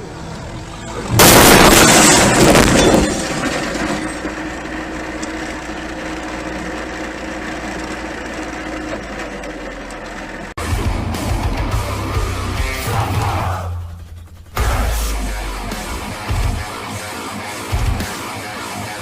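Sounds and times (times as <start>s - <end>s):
car crash impact smashing: 1.2s - 4.4s
steady low noise: 10.6s - 17.0s.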